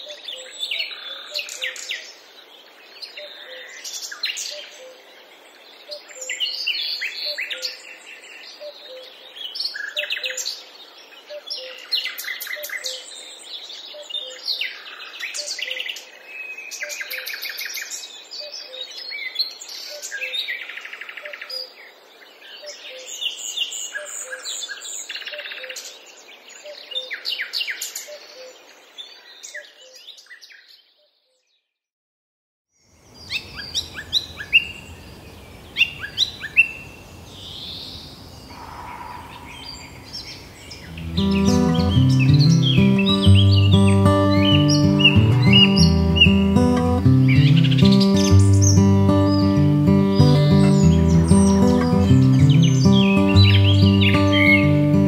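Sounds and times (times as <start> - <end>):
birds singing and chirping: 37.4 - 55.0
faint low repeating note: 40.9 - 55.0.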